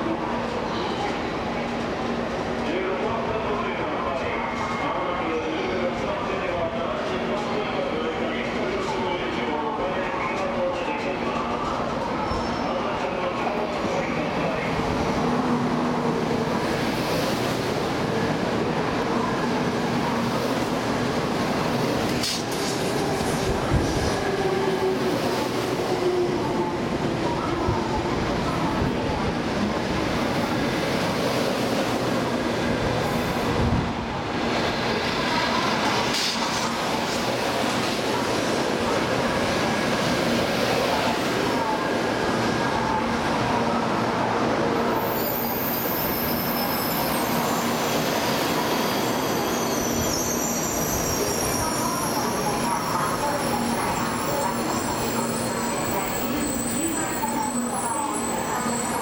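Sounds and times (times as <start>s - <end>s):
multi-tone train whine: 0.0s - 59.0s
train wheels rumbling on rail: 10.4s - 43.6s.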